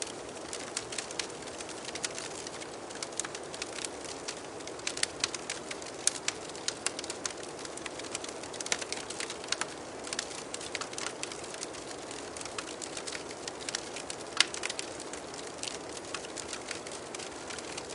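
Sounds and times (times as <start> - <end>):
wood fire crackling and popping: 0.0 - 17.9.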